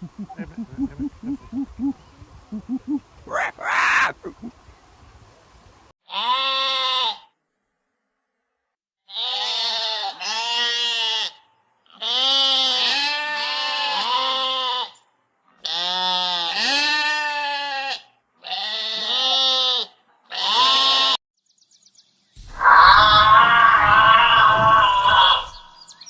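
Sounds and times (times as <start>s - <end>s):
goats bleating: 2.7s - 4.5s, 9.1s - 11.3s, 12.0s - 14.9s, 15.6s - 21.2s, 23.0s - 25.6s.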